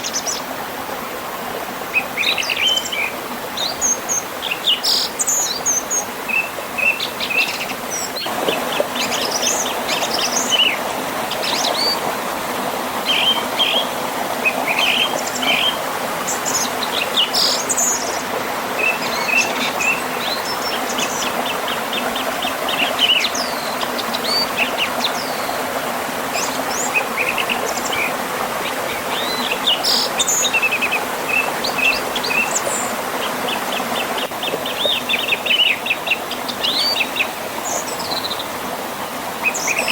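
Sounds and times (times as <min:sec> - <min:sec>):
rushing river and waterfall: 0:00.0 - 0:39.9.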